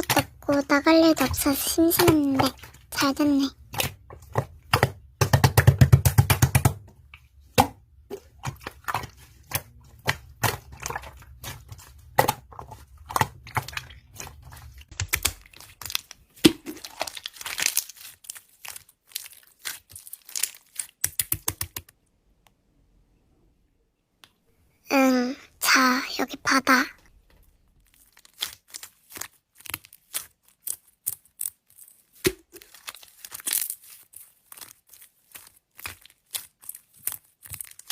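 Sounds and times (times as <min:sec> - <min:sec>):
slime crackling and popping: 0:10.4 - 0:21.8, 0:27.7 - 0:37.9.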